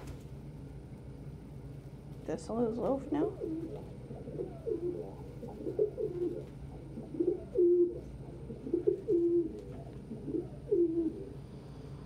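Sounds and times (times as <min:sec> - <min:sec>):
pigeons cooing: 0:03.0 - 0:11.7.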